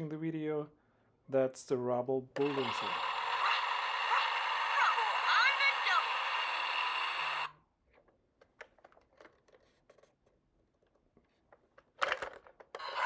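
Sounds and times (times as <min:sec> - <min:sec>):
electronic toy sound effect: 0:02.4 - 0:07.5, 0:12.8 - 0:13.0.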